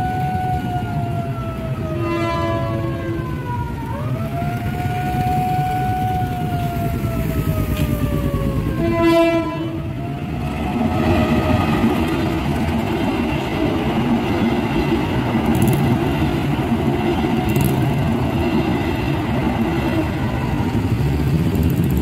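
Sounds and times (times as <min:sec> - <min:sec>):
motorcycles and cars passing: 0:15.3 - 0:22.0.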